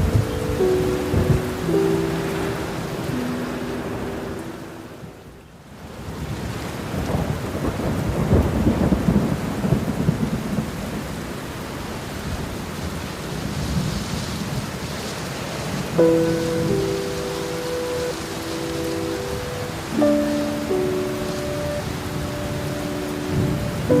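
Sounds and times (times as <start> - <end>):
thunder rolling: 0.0 - 3.7, 6.9 - 11.0
heavy rain: 0.0 - 24.0.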